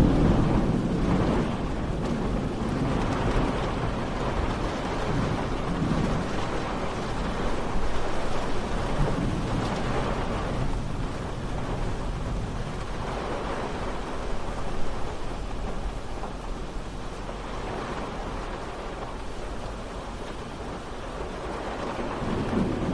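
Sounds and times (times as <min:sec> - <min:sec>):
steady rain: 0:00.0 - 0:22.9.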